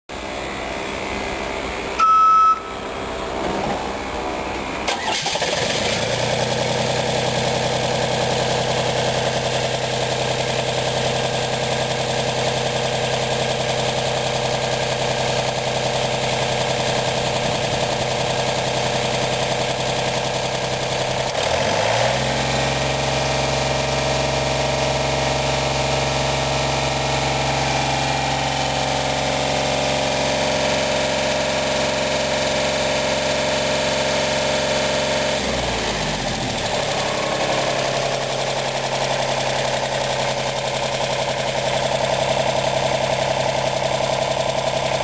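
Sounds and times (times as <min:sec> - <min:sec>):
diesel engine starting and idling: 0:00.1 - 0:45.0
loud electronic beep: 0:02.0 - 0:02.9.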